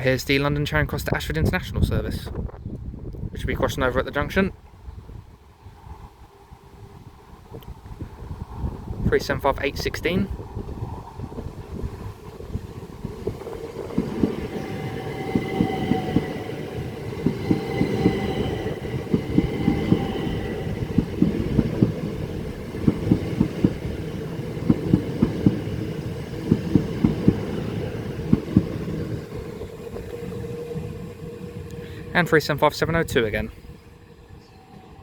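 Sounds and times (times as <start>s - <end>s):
train rumble: 0.0s - 35.0s
faint train whine: 3.2s - 35.0s
train wheels clattering over rail joints: 12.2s - 32.1s.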